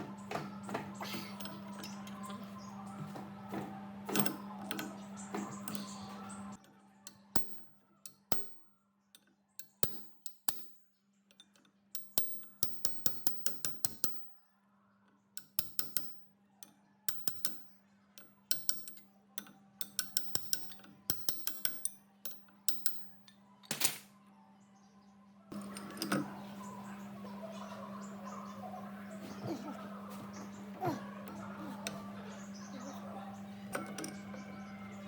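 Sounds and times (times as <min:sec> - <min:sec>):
metal tools clicking and tapping: 0:01.2 - 0:02.5, 0:04.1 - 0:14.4, 0:15.4 - 0:24.0, 0:25.5 - 0:26.3, 0:30.3 - 0:34.5
faint hum: 0:22.4 - 0:35.0.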